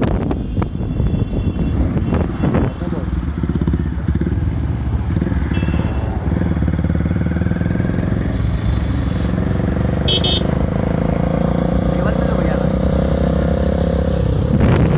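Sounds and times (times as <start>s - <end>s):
motorcycle engine running: 3.2s - 12.8s.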